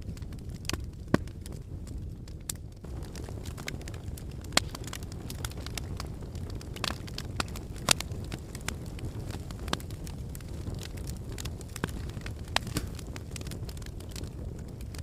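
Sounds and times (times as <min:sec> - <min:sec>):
fireplace fire crackling: 0:00.0 - 0:15.0.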